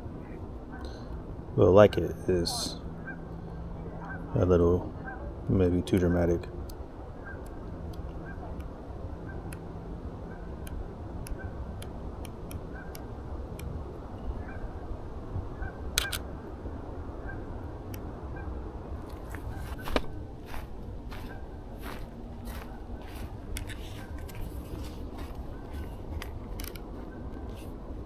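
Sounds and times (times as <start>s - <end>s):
steady low rumble: 0.0s - 28.0s
camera shutter clicking: 16.0s - 16.2s.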